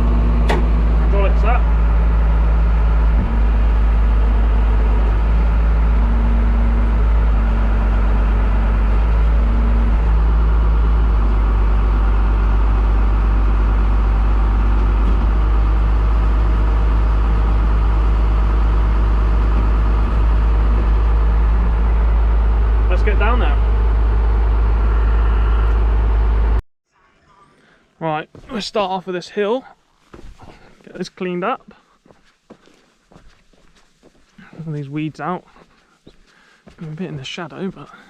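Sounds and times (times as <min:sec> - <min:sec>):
bulldozer diesel engine rumbling: 0:00.0 - 0:26.6, 0:34.3 - 0:38.0.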